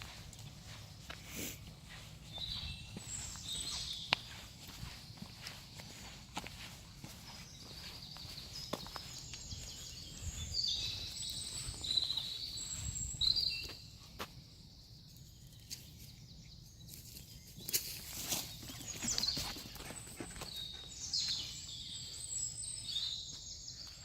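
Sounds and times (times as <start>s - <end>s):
high twittering birds: 0.0s - 24.0s
songbirds singing: 0.0s - 24.0s
rustles: 16.8s - 20.8s.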